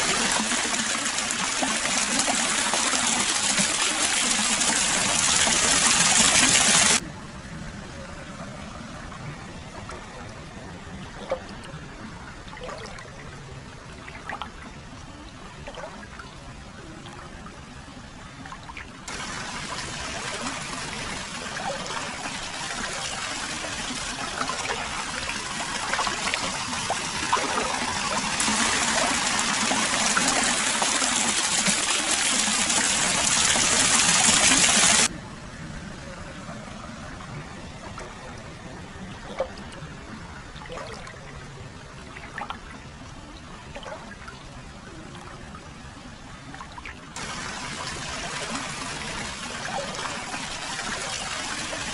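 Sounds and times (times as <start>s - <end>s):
water rushing pour: 0.0s - 7.1s, 8.1s - 17.7s, 18.4s - 35.2s, 36.4s - 51.9s
water trickling and dripping: 9.1s - 35.1s, 37.2s - 51.9s.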